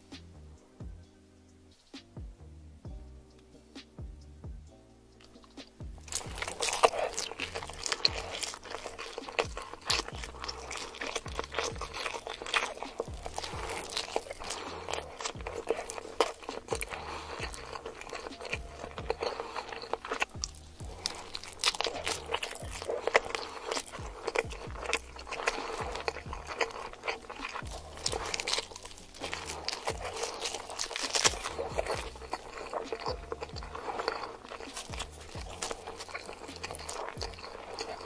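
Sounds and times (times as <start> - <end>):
background music: 0.0 - 38.0
person chewing food: 5.2 - 38.0.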